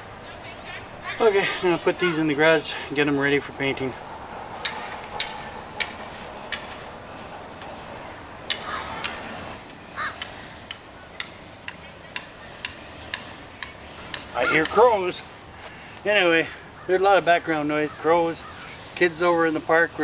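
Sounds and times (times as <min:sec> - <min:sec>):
crows cawing: 0:03.7 - 0:07.7, 0:08.5 - 0:11.3, 0:14.4 - 0:14.9, 0:15.6 - 0:18.9
sharp ticking clicks: 0:04.6 - 0:06.9, 0:08.4 - 0:14.8.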